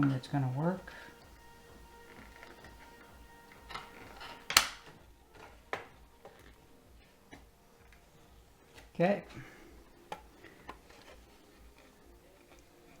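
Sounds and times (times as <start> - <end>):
plastic parts snapping: 3.6 - 5.9.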